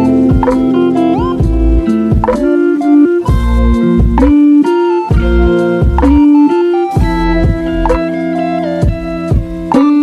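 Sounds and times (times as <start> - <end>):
plucked-string music with bass: 0.0 - 10.0.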